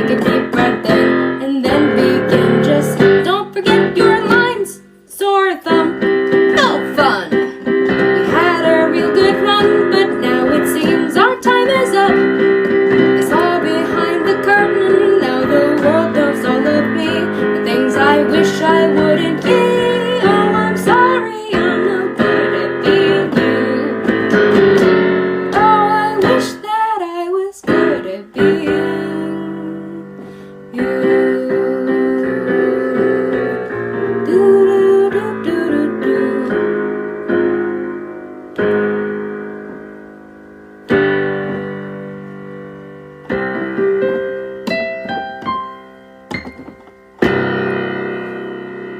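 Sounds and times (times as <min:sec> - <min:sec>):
person singing: 0:00.0 - 0:37.0.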